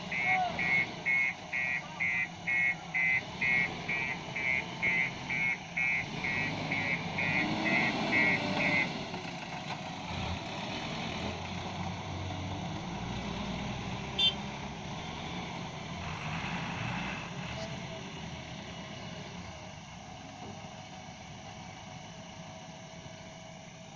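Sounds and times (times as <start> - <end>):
reversing alarm beeping: 0.0 - 9.0
heavy diesel engine running: 0.0 - 23.9.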